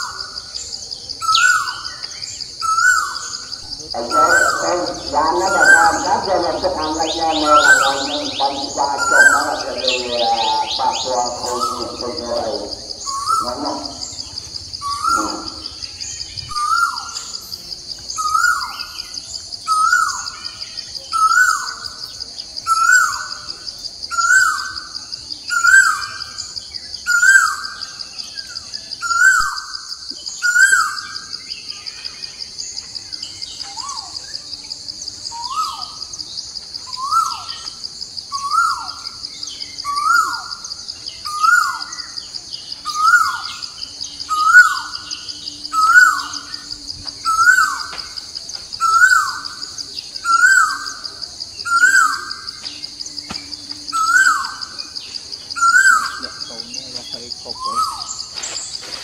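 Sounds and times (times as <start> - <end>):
high insect drone: 0.0 - 59.0
bird calling with falling notes: 1.2 - 12.0, 13.0 - 17.5, 29.0 - 32.5.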